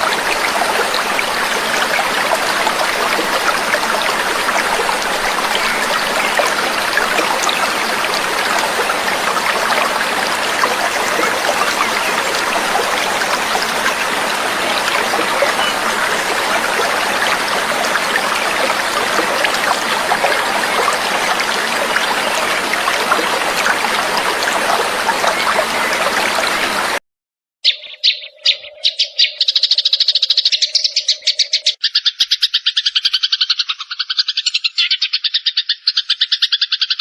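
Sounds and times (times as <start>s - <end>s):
trickling water: 0.0s - 27.0s.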